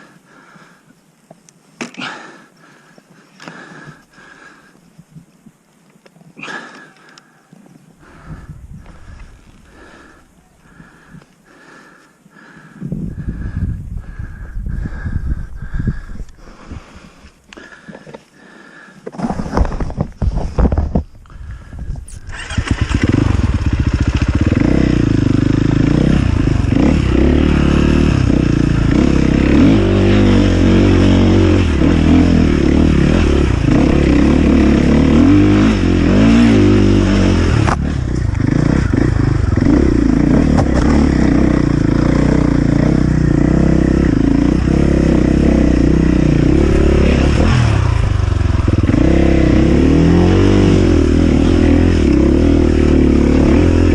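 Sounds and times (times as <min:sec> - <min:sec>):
motorcycle engine revving: 0:08.0 - 0:16.0, 0:21.4 - 0:53.9.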